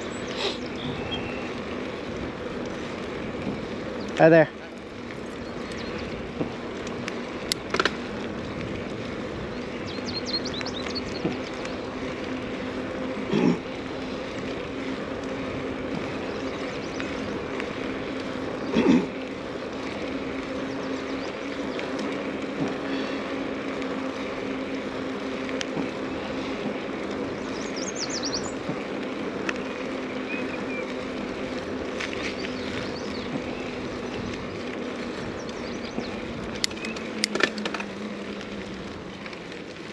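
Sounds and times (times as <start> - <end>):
birds chirping: 0.0 - 39.9
mountain bike rolling noise: 0.0 - 39.9.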